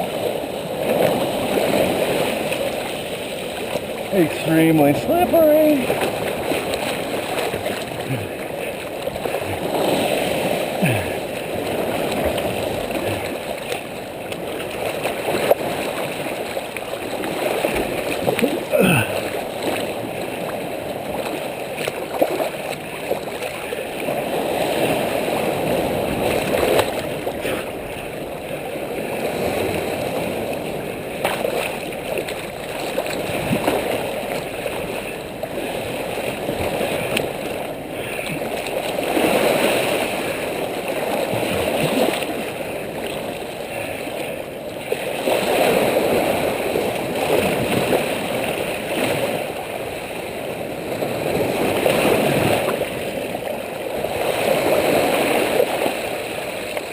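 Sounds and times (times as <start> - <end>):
surf washing over rocks: 0.0 - 56.9.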